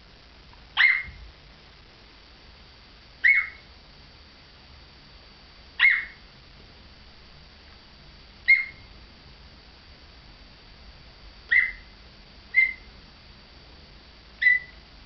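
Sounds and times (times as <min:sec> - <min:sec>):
parrot imitating dog barks: 0:00.8 - 0:01.2, 0:03.2 - 0:03.6, 0:05.8 - 0:06.2, 0:08.5 - 0:08.8, 0:11.5 - 0:11.9, 0:12.5 - 0:12.9, 0:14.4 - 0:14.7.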